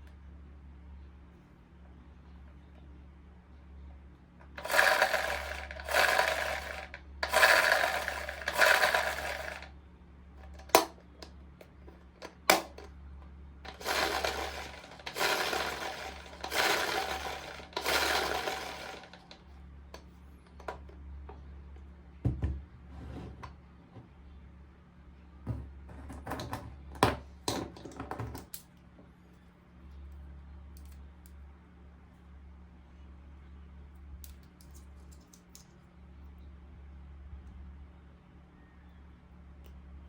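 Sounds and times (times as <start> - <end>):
plastic toy pieces rattling: 4.6 - 9.7, 13.7 - 19.4.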